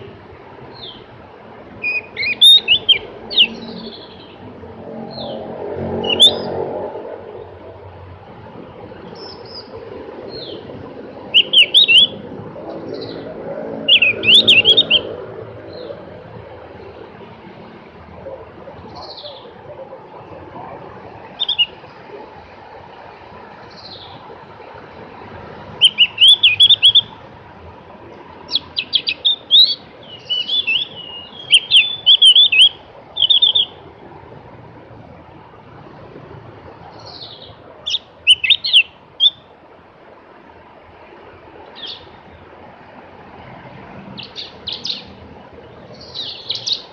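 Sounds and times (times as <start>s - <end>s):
steady background hiss: 0.0s - 46.9s
bird whistling song: 1.8s - 4.4s, 6.0s - 6.6s, 11.2s - 12.2s, 13.8s - 15.9s, 21.4s - 21.8s, 25.8s - 27.2s, 28.5s - 33.8s, 37.0s - 39.4s, 44.2s - 45.1s, 45.9s - 46.9s
bird warbling: 5.1s - 6.6s, 12.9s - 15.2s.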